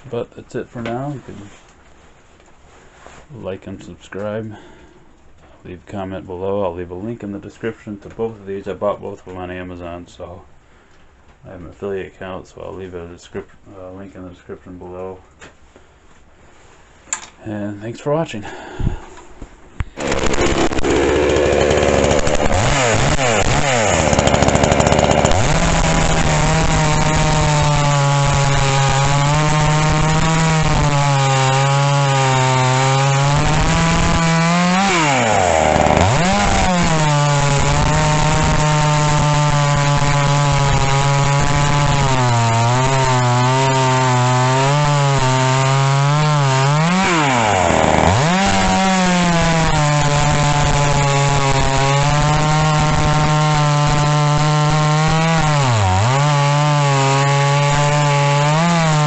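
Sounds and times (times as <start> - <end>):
chainsaw running at high revs: 20.0 - 59.0.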